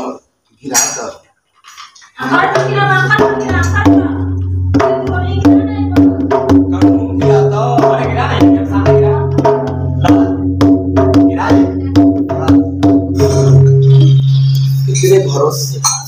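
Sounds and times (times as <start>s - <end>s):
hand drum beating: 2.2s - 14.2s
cymbals: 11.3s - 16.0s
sustained held notes: 13.1s - 16.0s.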